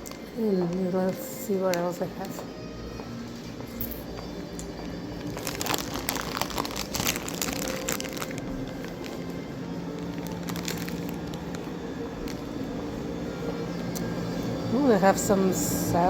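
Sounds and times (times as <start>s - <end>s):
steady low hum: 0.0s - 16.0s
plastic packaging crinkling: 3.7s - 12.8s.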